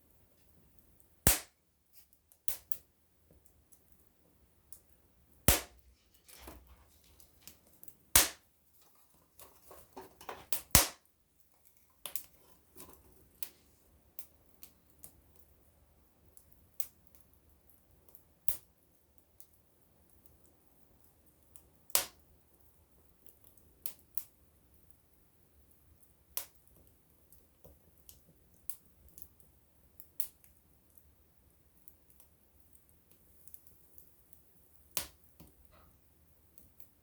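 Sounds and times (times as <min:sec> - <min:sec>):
burning wood popping: 0:01.2 - 0:01.6, 0:05.4 - 0:13.6.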